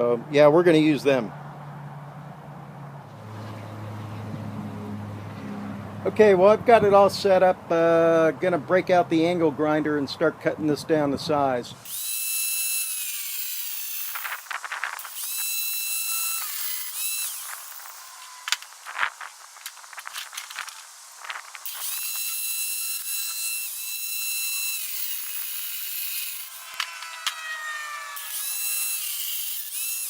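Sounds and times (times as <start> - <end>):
angle grinder cutting metal: 11.8 - 30.0.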